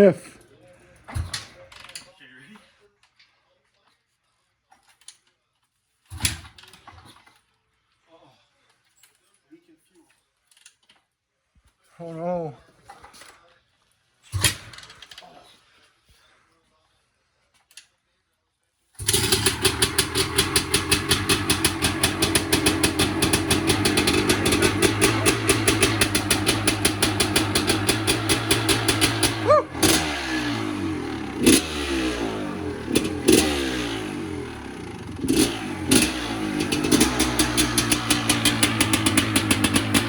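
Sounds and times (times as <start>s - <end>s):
two-stroke dirt bike engine revving: 19.0s - 40.0s.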